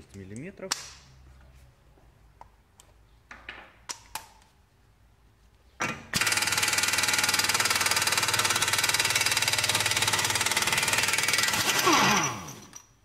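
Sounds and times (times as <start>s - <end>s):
impact wrench hammering: 5.8s - 12.8s.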